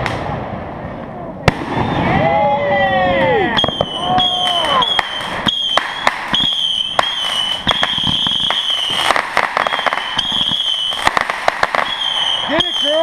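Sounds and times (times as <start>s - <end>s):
fireworks popping and crackling: 3.1s - 13.0s
high-pitched whistling tone: 3.6s - 9.0s.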